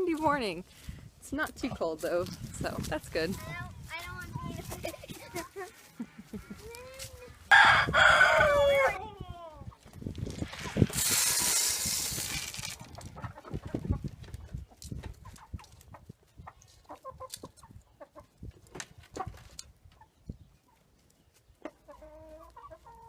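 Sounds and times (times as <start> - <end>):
wind rumbling on microphone: 0.3 - 5.1, 7.5 - 19.4
chickens clucking: 4.2 - 10.0, 12.8 - 23.0
loud rushing hiss: 10.8 - 12.6.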